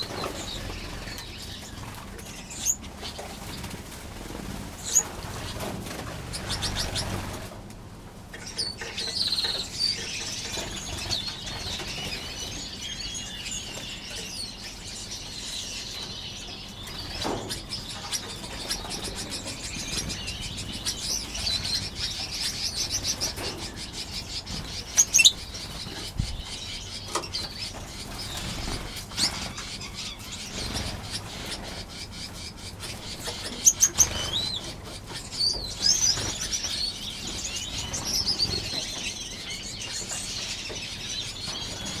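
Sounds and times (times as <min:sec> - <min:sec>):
finches chirping: 0:00.0 - 0:07.4, 0:08.3 - 0:42.0
wings fluttering: 0:00.0 - 0:07.6, 0:16.9 - 0:39.1.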